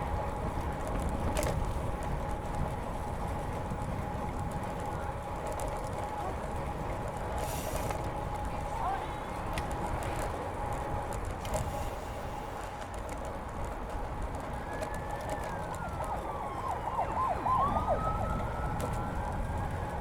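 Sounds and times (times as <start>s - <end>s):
bicycle tyre rumble: 0.0s - 20.0s
wind: 0.0s - 20.0s
siren wailing: 14.5s - 20.0s.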